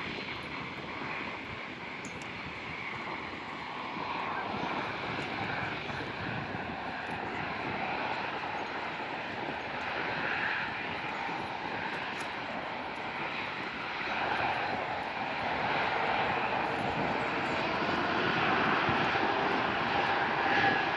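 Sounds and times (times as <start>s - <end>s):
jet engines roaring: 0.0s - 20.9s.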